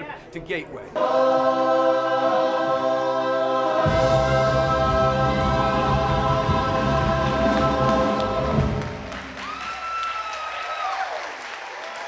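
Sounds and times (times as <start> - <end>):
ensemble singing held chord: 1.0 - 9.2
drums hitting: 3.8 - 9.4.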